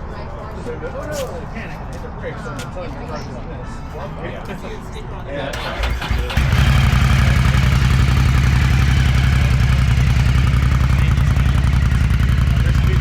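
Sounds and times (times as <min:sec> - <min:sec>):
vehicle engine starting and idling: 0:05.5 - 0:13.0.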